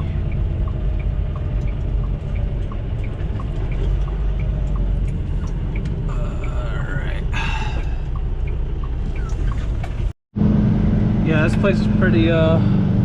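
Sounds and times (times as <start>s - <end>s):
turn signal ticking: 0.0s - 10.1s
diesel engine rumbling: 0.0s - 13.0s.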